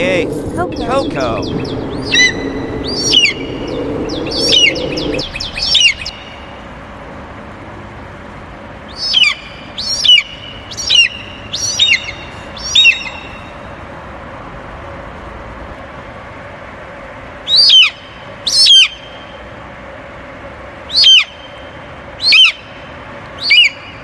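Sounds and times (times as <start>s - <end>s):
birds chirping: 0.0s - 6.9s, 8.8s - 13.9s, 17.4s - 19.5s, 20.8s - 24.0s
low hum: 0.0s - 8.9s.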